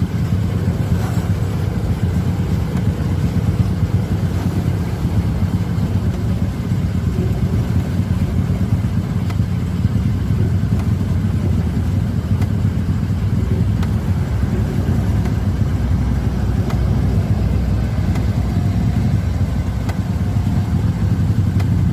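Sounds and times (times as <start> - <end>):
locomotive engine running: 0.0 - 21.9
faint sharp ticks: 9.2 - 9.5, 18.1 - 18.3, 19.8 - 20.0, 21.6 - 21.8.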